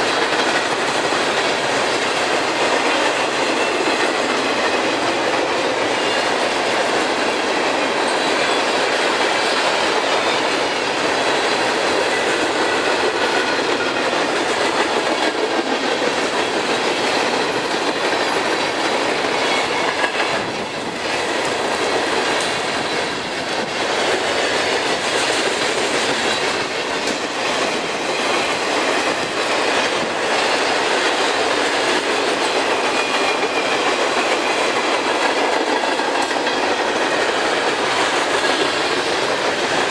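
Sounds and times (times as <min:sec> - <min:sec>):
clicking over rail joints: 0:00.0 - 0:39.9
train wheels rumbling on rail: 0:00.0 - 0:39.9
high wheel squeal: 0:05.9 - 0:06.4.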